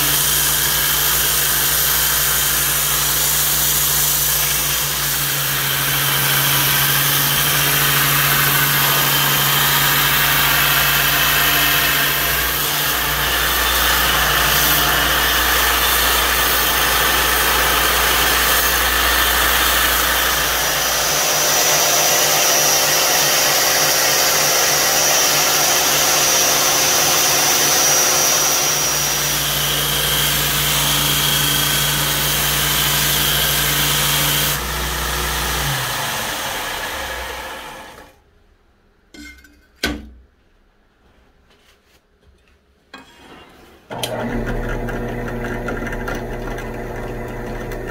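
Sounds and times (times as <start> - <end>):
blade grinding on belt: 0.0 - 37.2
belt grinder motor hum: 43.9 - 47.9.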